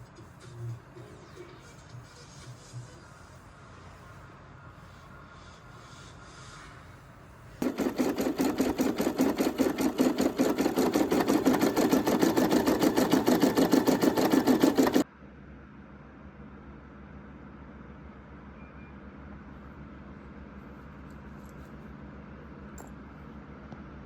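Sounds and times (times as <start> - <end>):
sewing machine stitching: 7.6 - 15.0.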